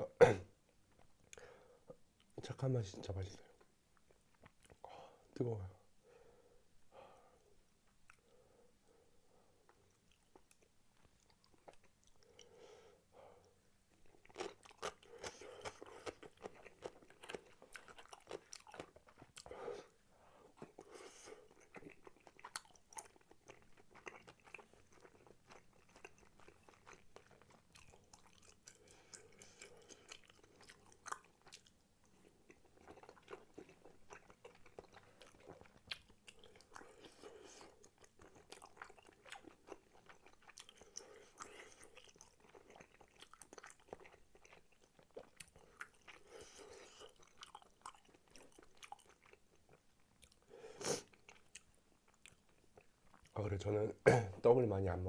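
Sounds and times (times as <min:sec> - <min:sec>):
chewing and mouth clicks: 0:09.7 - 0:12.5, 0:13.9 - 0:19.5, 0:20.6 - 0:53.4.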